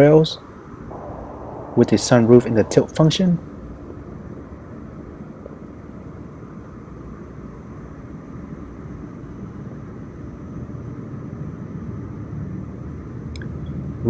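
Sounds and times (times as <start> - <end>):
faint high steady tone: 0.9 - 4.1.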